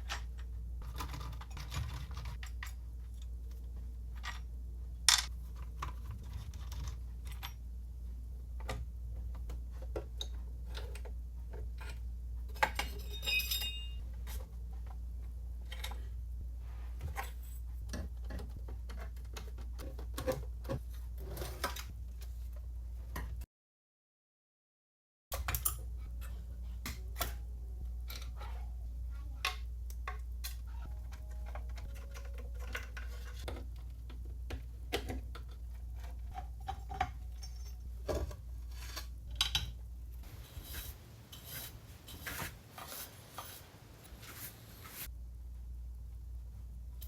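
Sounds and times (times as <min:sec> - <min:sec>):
steady low hum: 0:00.0 - 0:23.4, 0:25.4 - 0:47.0
small metal parts clinking: 0:12.6 - 0:14.4, 0:36.9 - 0:37.9.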